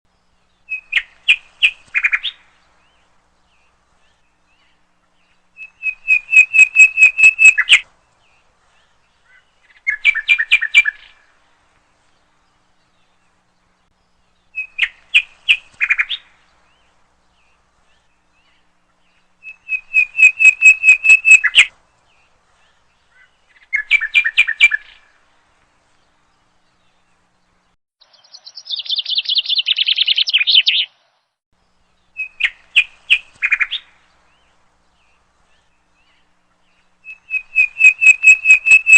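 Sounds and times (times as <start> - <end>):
songbird chirping: 0.1 - 38.9.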